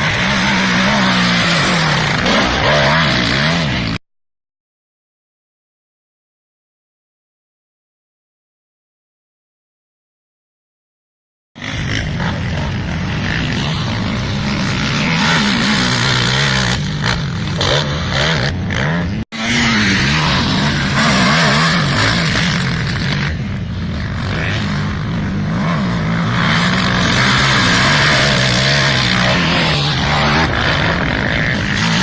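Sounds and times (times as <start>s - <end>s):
quad engine revving: 0.0s - 4.0s, 11.6s - 32.0s.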